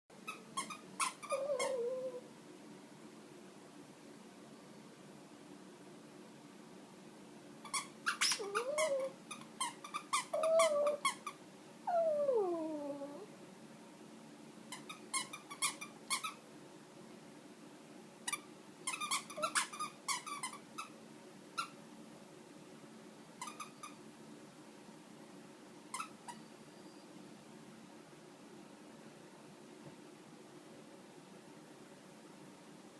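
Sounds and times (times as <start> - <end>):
squeaky toy squeaking: 0.2 - 2.0, 7.7 - 11.4, 14.8 - 16.4, 18.3 - 20.9, 23.4 - 24.0, 25.9 - 26.4
puppy whining: 0.2 - 2.3, 7.7 - 13.3, 18.9 - 20.9.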